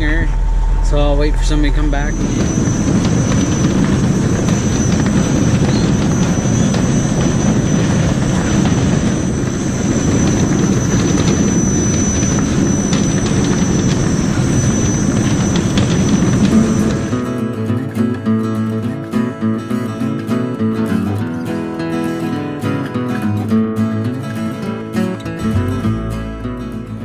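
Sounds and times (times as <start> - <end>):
diesel truck engine idling: 0.0 - 17.4
thin high whine: 0.0 - 24.7.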